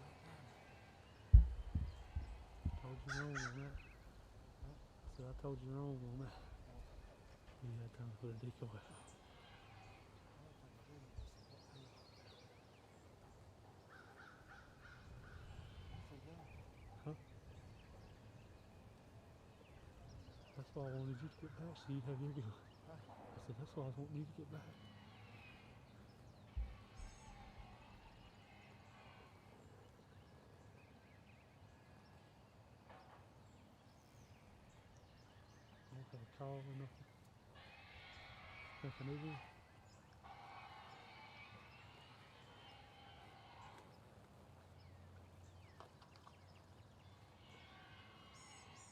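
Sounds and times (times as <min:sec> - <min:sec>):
birds calling: 0:00.0 - 0:48.9
short low thump: 0:01.3 - 0:02.8
soft low bump: 0:01.3 - 0:02.8.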